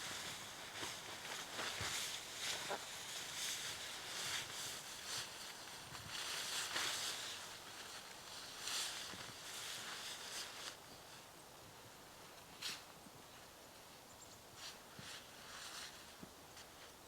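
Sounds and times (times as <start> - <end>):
footsteps crunching through snow: 0.0 - 10.8.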